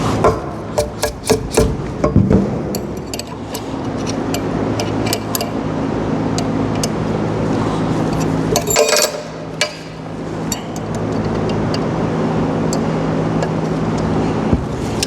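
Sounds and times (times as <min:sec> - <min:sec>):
low machine hum: 0:00.0 - 0:15.0
metal tools clinking: 0:02.8 - 0:05.6, 0:08.1 - 0:11.6.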